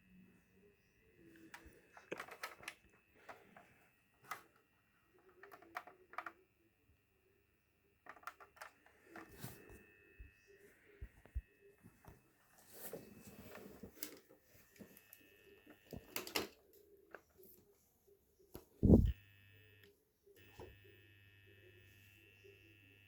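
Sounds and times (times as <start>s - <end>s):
low hum: 18.8s - 19.2s
high-pitched electronic whine: 18.8s - 19.8s.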